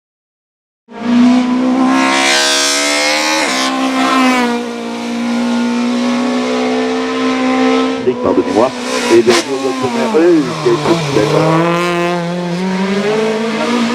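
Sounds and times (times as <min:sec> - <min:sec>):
racing car engine accelerating: 0:00.9 - 0:13.9.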